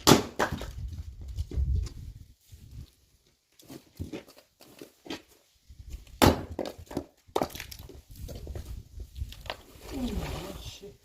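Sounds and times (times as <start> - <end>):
axe chopping firewood: 0.0 - 0.8, 6.1 - 7.9.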